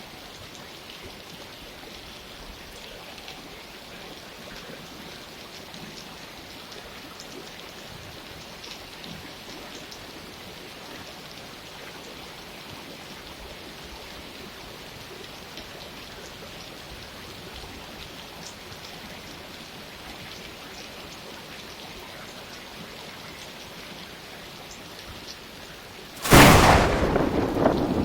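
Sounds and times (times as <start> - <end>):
steady rain: 0.0 - 28.0
thunderclap rumbling: 26.2 - 28.0.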